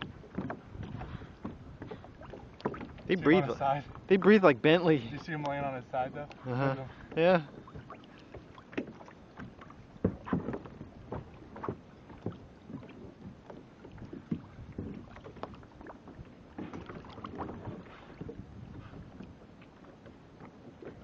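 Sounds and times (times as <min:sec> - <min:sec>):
water splashing against kayak: 0:00.0 - 0:21.0.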